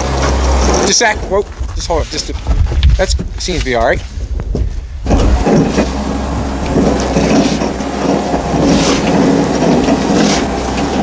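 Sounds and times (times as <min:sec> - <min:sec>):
winch mechanical drone: 0:00.0 - 0:01.6, 0:04.3 - 0:11.0
rattling and clatter: 0:00.0 - 0:11.0.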